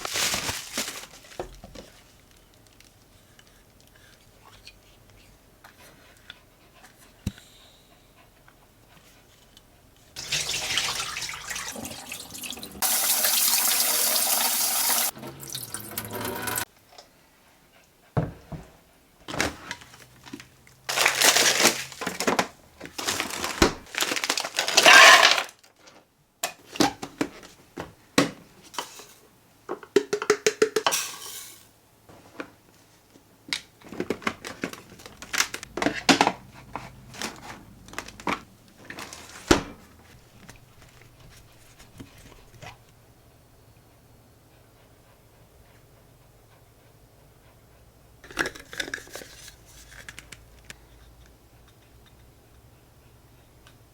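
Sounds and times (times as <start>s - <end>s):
tap water running into sink: 10.2s - 16.6s
dishes clattering: 24.8s - 25.4s.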